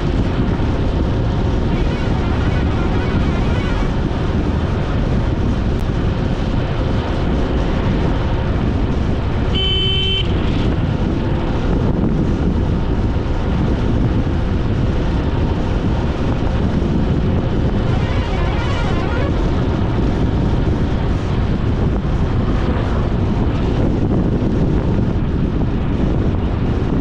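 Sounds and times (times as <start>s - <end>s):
wind and road noise: 0.0s - 27.0s
short horn beep: 9.5s - 10.4s, 17.8s - 19.4s.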